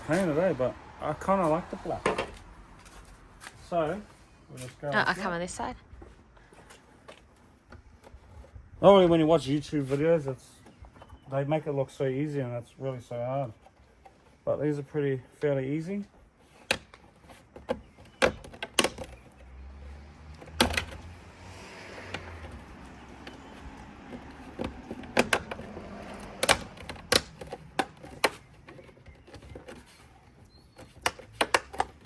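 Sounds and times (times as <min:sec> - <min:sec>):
plastic clicks and knocks: 0:24.1 - 0:29.9, 0:30.7 - 0:32.0.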